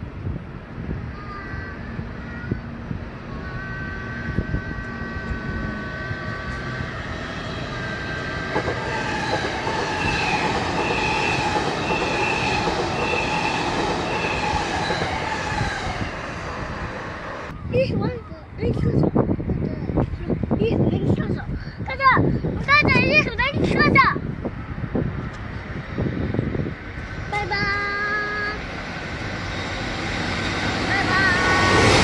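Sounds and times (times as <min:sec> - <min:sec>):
high whining tones: 0:03.5 - 0:17.7, 0:26.4 - 0:32.0
train wheels on rails: 0:04.2 - 0:17.5, 0:24.9 - 0:32.0
high squeal: 0:28.6 - 0:32.0.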